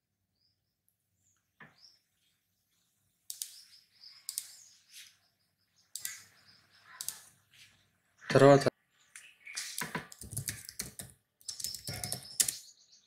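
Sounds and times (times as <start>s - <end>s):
faint bird chirps: 3.3s - 13.0s.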